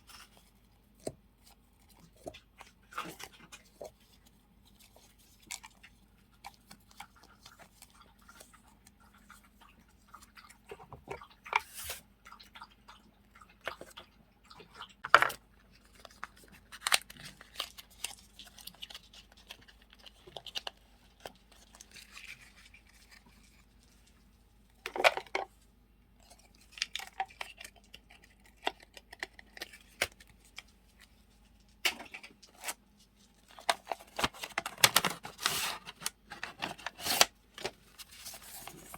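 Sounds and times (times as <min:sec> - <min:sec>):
paper and plastic crinkling: 0:15.2 - 0:25.5, 0:26.3 - 0:38.9.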